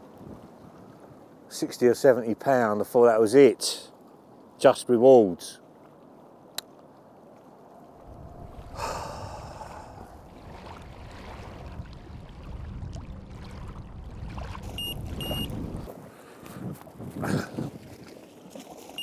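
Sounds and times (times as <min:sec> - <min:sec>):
wind buffeting microphone: 0:07.6 - 0:18.3
small waves lapping on gravel: 0:10.2 - 0:19.0
high electronic beeps: 0:14.8 - 0:15.5.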